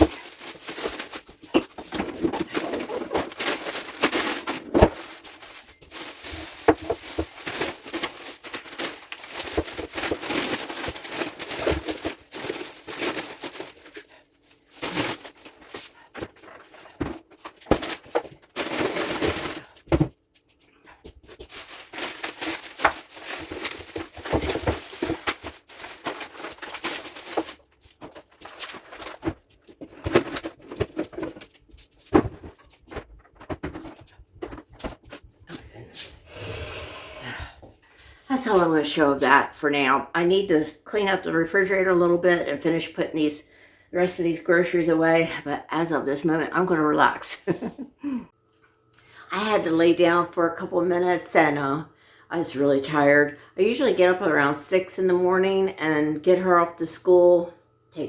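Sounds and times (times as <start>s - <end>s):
items knocking when set down: 0.0s - 5.2s, 16.2s - 20.2s, 21.4s - 35.1s
packaging rustling and crinkling: 0.0s - 35.2s.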